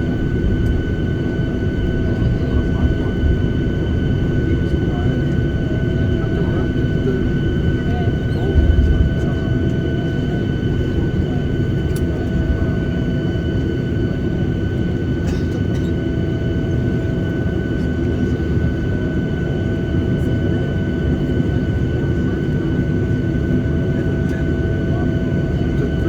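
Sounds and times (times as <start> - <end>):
high engine whine: 0.0 - 15.2
aircraft cabin engine rumble: 0.0 - 26.0.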